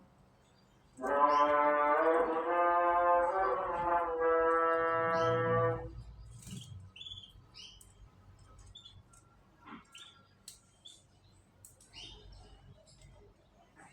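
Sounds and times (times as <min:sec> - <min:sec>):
canaries chirping: 0:00.4 - 0:09.2, 0:09.8 - 0:13.2
held horn-like note: 0:01.0 - 0:06.0.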